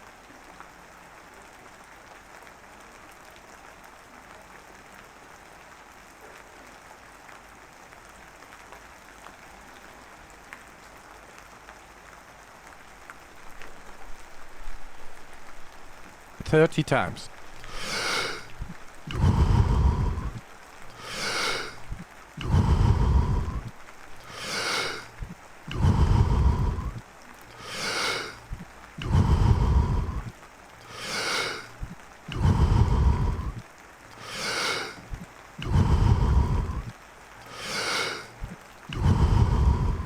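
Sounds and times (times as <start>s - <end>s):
deep rhythmic breathing: 16.4s - 40.0s.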